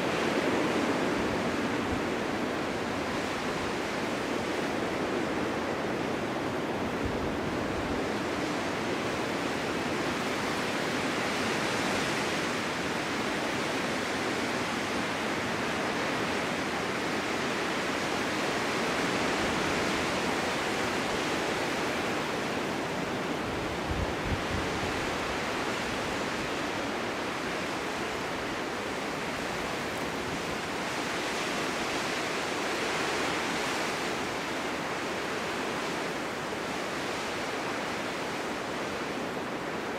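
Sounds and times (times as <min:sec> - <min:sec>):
strong wind blowing: 0:00.0 - 0:39.9
wind buffeting microphone: 0:19.0 - 0:31.3.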